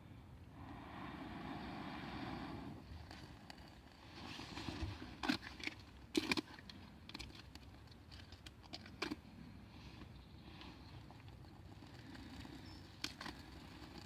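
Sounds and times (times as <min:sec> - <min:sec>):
small ticks and rustling: 0:02.8 - 0:14.0.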